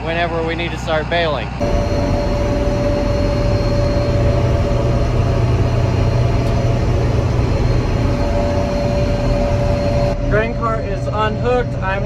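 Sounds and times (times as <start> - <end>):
steady whine: 1.1 - 12.0
tractor diesel engine rumbling: 1.6 - 10.2.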